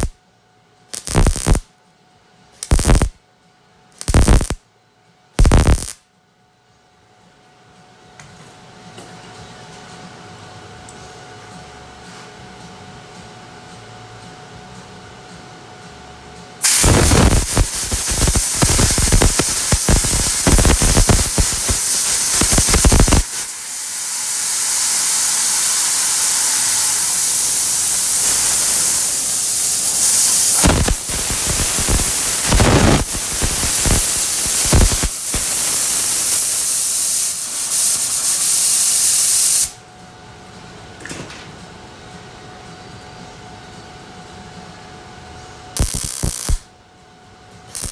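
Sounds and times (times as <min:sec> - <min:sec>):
steady hiss of weld cooling: 0:00.9 - 0:01.6, 0:02.6 - 0:03.1, 0:04.0 - 0:04.6, 0:05.4 - 0:06.0, 0:16.6 - 0:39.8, 0:45.8 - 0:46.7, 0:47.6 - 0:47.9
welding arc crackling: 0:00.9 - 0:01.7, 0:02.6 - 0:03.2, 0:04.0 - 0:04.6, 0:05.4 - 0:06.0, 0:16.6 - 0:39.8, 0:45.8 - 0:46.7, 0:47.6 - 0:47.9.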